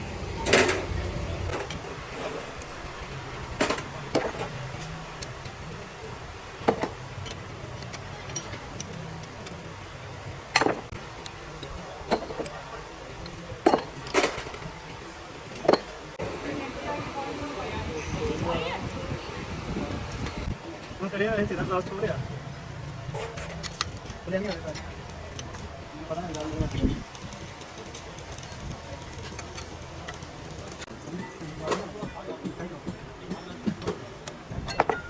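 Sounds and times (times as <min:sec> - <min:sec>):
metal tools clinking: 0:01.5 - 0:06.0, 0:06.6 - 0:09.9, 0:10.5 - 0:16.0, 0:26.3 - 0:32.0, 0:34.7 - 0:35.0.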